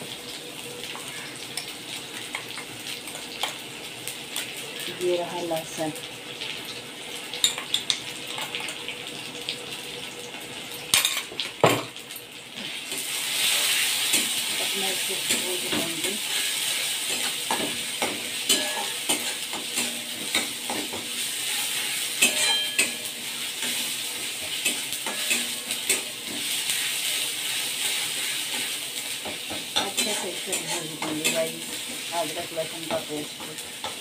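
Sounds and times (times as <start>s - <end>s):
paste sizzling in hot oil: 12.5s - 34.0s
spatula scraping and knocking pan: 13.7s - 23.0s.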